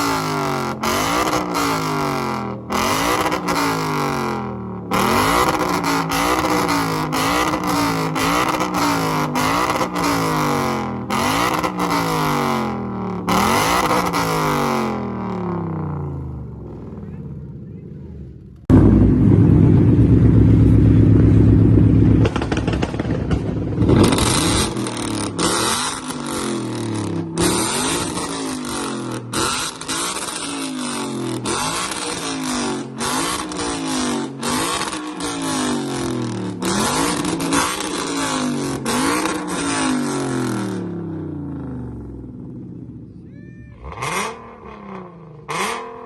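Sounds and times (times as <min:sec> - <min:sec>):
car engine revving: 0:00.0 - 0:43.2, 0:43.8 - 0:46.0.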